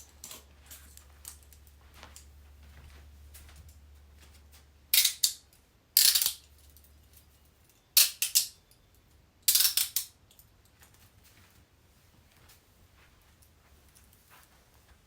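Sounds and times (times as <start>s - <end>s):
metal handcuffs rattling: 4.9s - 10.5s.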